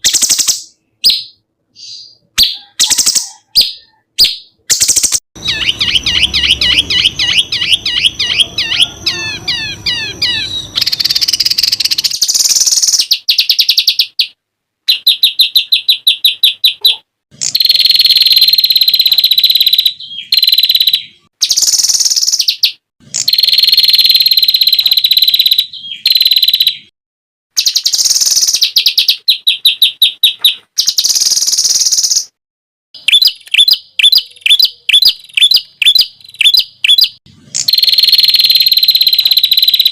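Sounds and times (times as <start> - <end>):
songbirds trilling: 5.4 - 13.7.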